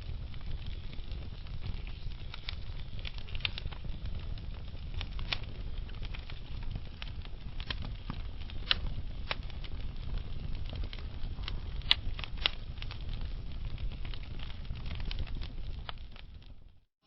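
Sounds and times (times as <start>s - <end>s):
logs crackling and popping: 0.0s - 16.9s
low rumble of fire: 0.0s - 16.9s.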